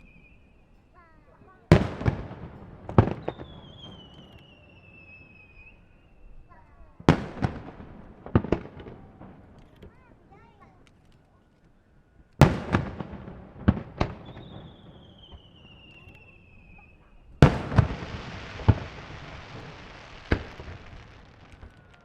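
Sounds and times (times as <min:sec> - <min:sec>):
firework whistle gliding down: 0:00.0 - 0:00.6, 0:03.1 - 0:06.6, 0:14.3 - 0:22.0
firework shells booming: 0:01.6 - 0:10.0, 0:12.4 - 0:22.0
firework crackling hiss: 0:12.5 - 0:22.0.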